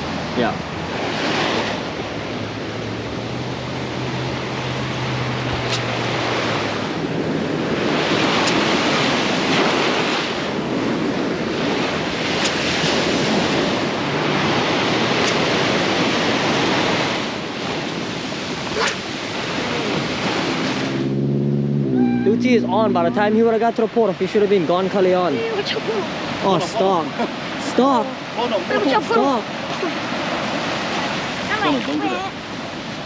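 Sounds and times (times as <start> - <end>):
wind buffeting microphone: 0.0 - 26.4
ocean surf on shore: 0.0 - 33.0.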